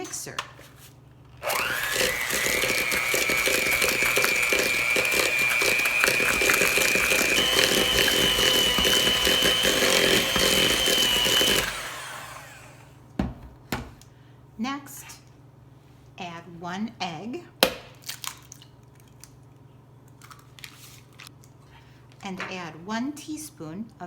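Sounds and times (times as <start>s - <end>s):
electric mixer motor whine: 1.4s - 12.9s.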